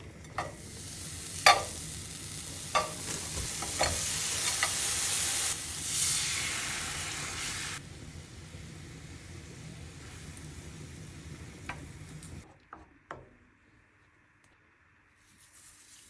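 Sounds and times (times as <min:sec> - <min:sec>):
pot sizzling: 0:00.0 - 0:12.5
sharp clinks against pot: 0:01.4 - 0:01.8, 0:02.8 - 0:03.0.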